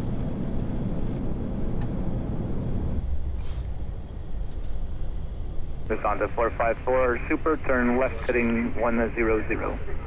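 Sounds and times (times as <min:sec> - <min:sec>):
cockpit airflow and engine rumble: 0:00.0 - 0:10.0
short hiss: 0:03.4 - 0:03.8.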